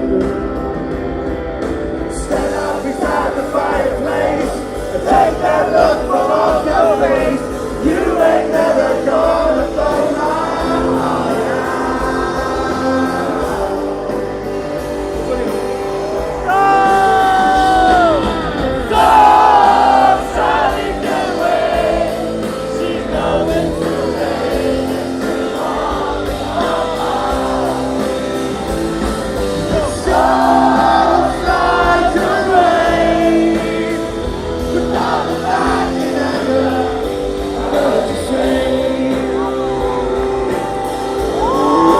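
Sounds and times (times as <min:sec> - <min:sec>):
live rock band: 0:00.0 - 0:41.9
person singing: 0:29.4 - 0:41.9.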